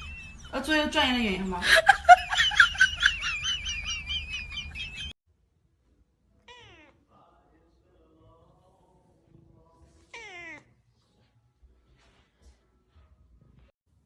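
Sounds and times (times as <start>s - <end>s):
cat meowing: 6.4s - 7.0s, 10.1s - 10.7s.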